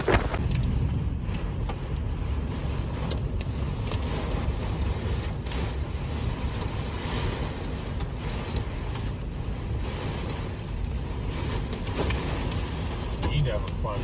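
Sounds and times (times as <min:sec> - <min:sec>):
wind and heavy rain on vehicle: 0:00.0 - 0:14.0.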